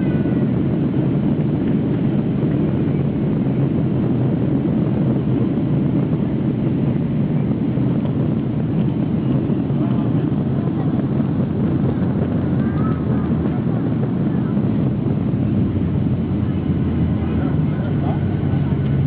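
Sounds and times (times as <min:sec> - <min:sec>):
airplane cabin engine rush: 0:00.0 - 0:19.0.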